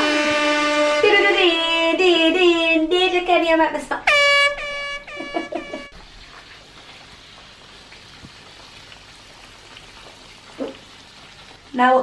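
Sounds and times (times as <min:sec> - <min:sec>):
woman singing high notes: 0:00.0 - 0:05.4
chicken wings sizzling in oil: 0:05.1 - 0:12.0.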